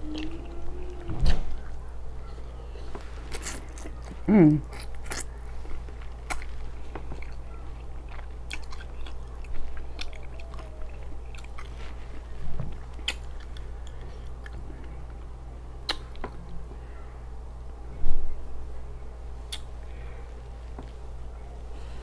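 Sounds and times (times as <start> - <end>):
steady low hum: 0.0 - 22.0
chewing mouth sounds: 3.3 - 15.0, 15.8 - 16.2.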